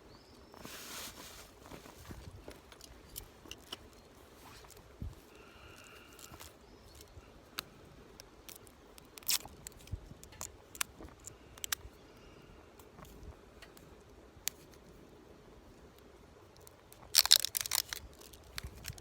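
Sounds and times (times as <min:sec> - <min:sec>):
small hard objects clicking: 0:05.7 - 0:11.8, 0:16.6 - 0:19.0.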